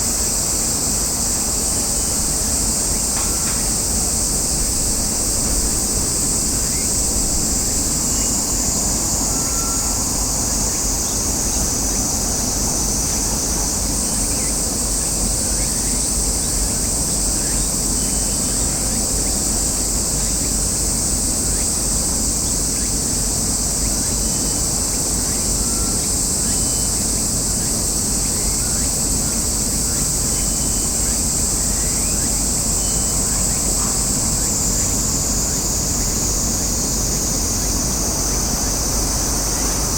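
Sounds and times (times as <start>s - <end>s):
low rumble of wind: 0.0s - 22.2s.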